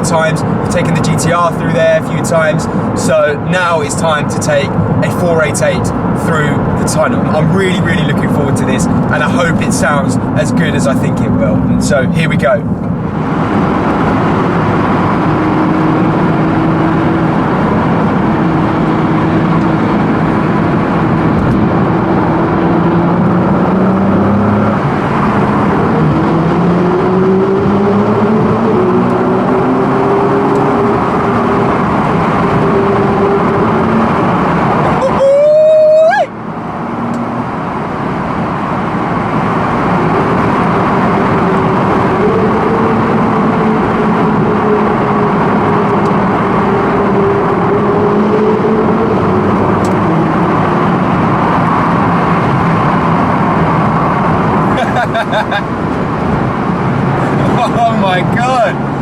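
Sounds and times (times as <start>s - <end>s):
car engine changing gears: 0.0s - 59.0s
road noise: 0.0s - 59.0s
rising whine: 12.6s - 59.0s.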